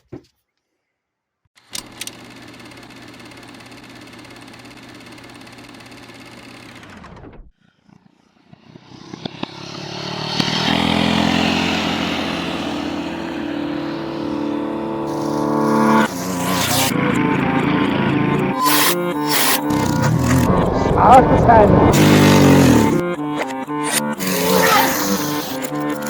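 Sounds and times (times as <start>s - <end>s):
small gas engine running: 1.7s - 26.0s
loud engine running: 8.6s - 26.0s.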